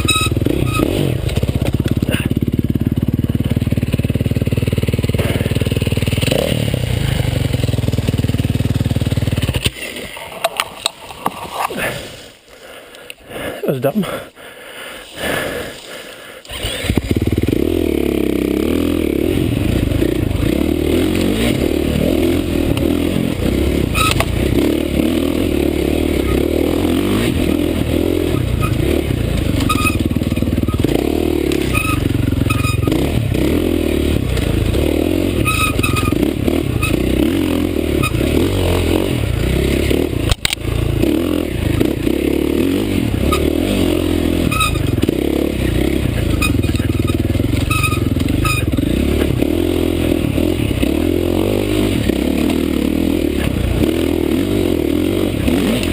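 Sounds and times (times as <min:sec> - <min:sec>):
dirt bike engine revving: 0:00.0 - 0:12.3, 0:15.1 - 0:55.9
bike clattering over rough ground: 0:28.3 - 0:33.0.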